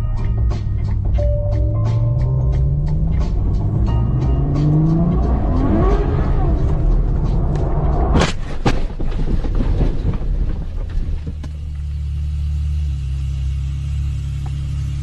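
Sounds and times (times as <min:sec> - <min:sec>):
car engine rumbling: 0:00.0 - 0:15.0
short knocks and clatters: 0:08.2 - 0:11.6.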